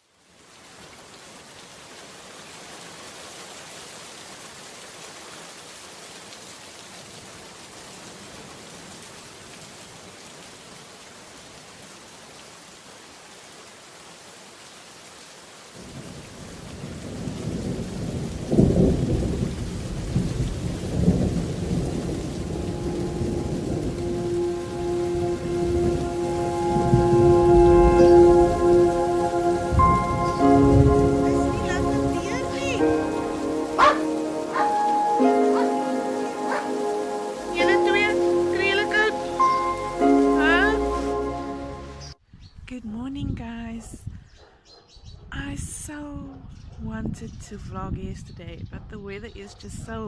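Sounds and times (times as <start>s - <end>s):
rain falling: 0.0s - 42.2s
rolling thunder: 15.8s - 24.4s.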